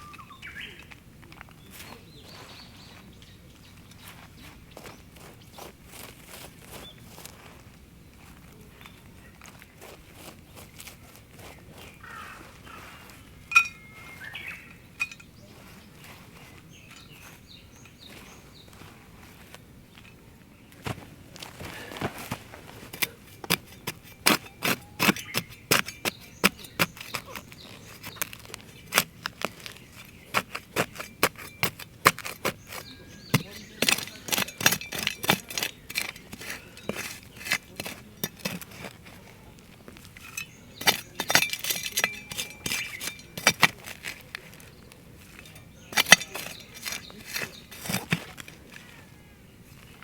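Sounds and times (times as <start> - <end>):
metal and glass items clinking: 13.5 - 15.4, 40.1 - 48.3.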